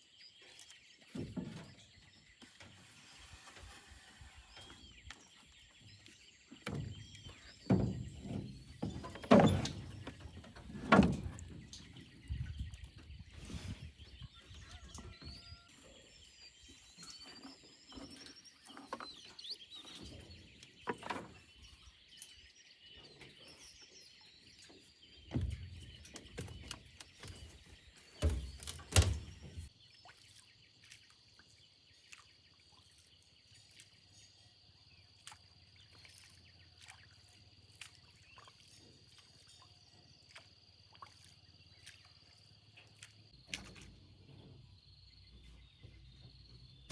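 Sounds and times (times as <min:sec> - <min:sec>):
heavy knocks and thumps: 0:06.7 - 0:12.6, 0:25.3 - 0:29.7.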